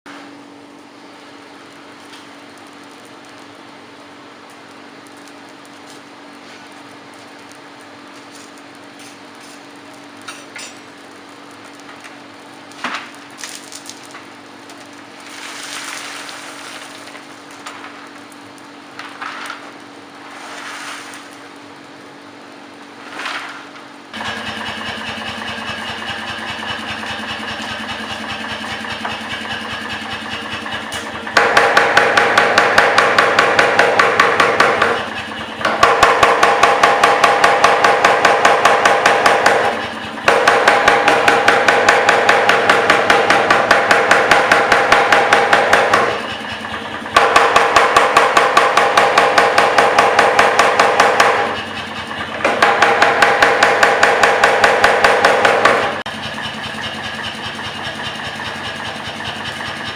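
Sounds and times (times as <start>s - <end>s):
power hammer striking hot steel: 5.0s - 12.2s, 24.1s - 59.9s.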